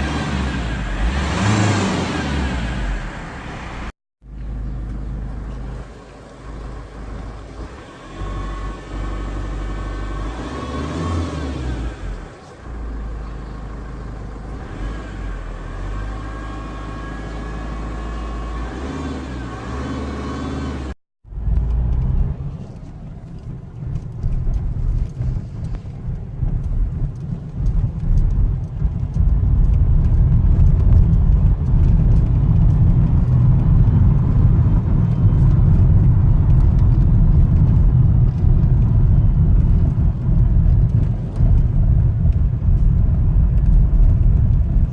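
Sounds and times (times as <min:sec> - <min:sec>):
heavy low rumble: 0:00.0 - 0:08.4, 0:21.2 - 0:44.9.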